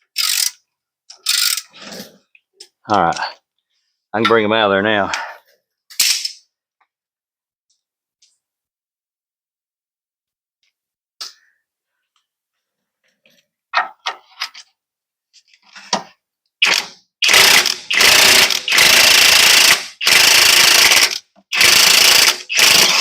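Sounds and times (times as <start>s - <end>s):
impact wrench bursts: 16.6s - 23.0s.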